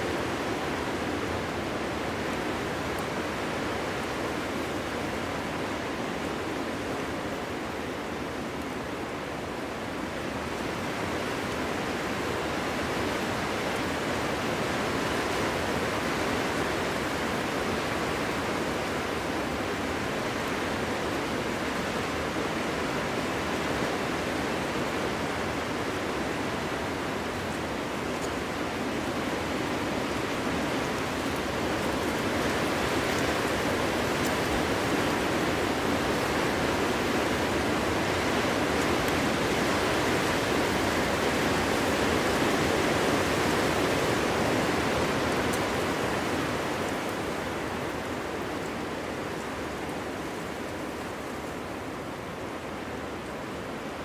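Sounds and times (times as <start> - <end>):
wind blowing through trees: 0.0 - 54.0.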